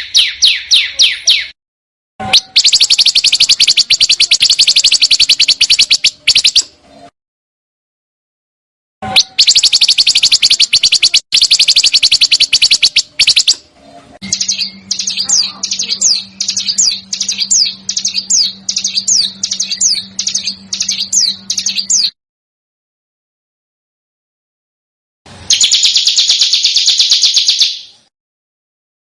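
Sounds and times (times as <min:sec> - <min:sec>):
bird whistling descending notes: 0:02.3 - 0:06.6, 0:09.1 - 0:13.6, 0:14.2 - 0:22.2, 0:25.5 - 0:27.9
songbird rattling trill: 0:02.4 - 0:06.7, 0:09.2 - 0:13.6, 0:14.2 - 0:22.2, 0:25.5 - 0:28.0
faint low hum: 0:09.6 - 0:22.1.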